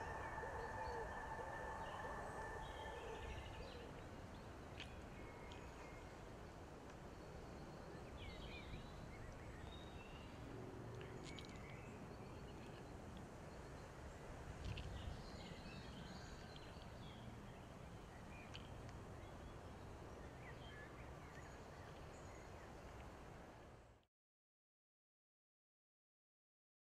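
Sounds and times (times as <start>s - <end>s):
birds chirping: 0.0s - 6.2s.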